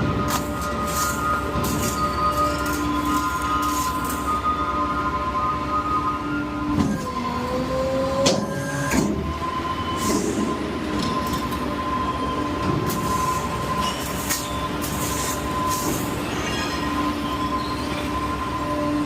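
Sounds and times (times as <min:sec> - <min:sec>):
hydraulics whining and humming: 0:00.0 - 0:19.0
metallic clanks and scrapes: 0:00.3 - 0:04.4, 0:12.9 - 0:17.0.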